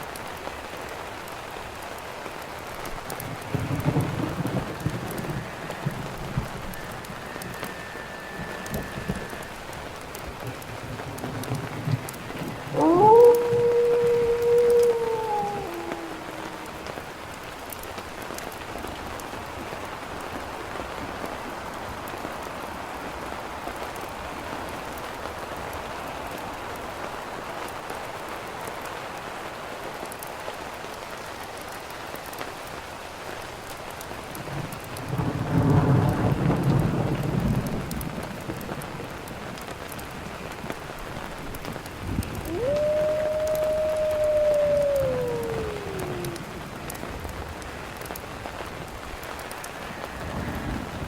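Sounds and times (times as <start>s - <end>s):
rain falling: 0.0s - 51.0s
thunder rolling: 3.1s - 17.3s, 41.9s - 51.0s.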